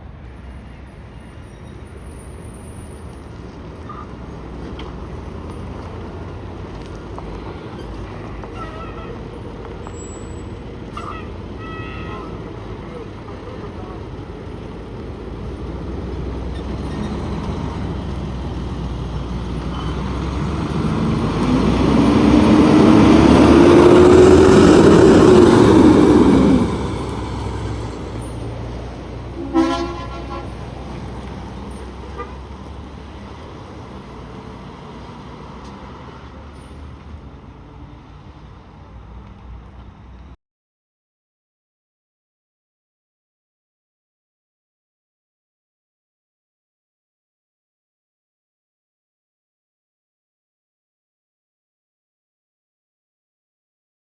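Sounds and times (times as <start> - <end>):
traffic noise: 0.0 - 40.4
vehicle passing close: 2.8 - 39.1
short horn toot: 29.4 - 30.7.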